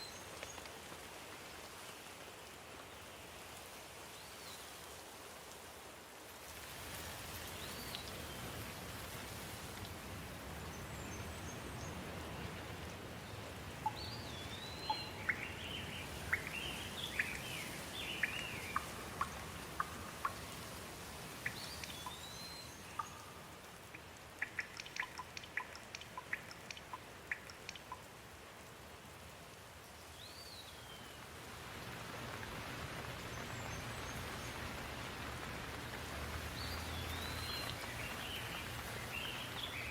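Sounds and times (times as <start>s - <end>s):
steady rain: 0.0s - 39.9s
water drops ticking: 13.7s - 20.7s, 21.4s - 28.2s
bird chirping: 13.8s - 20.5s, 21.4s - 23.5s, 24.4s - 28.0s, 36.6s - 39.9s.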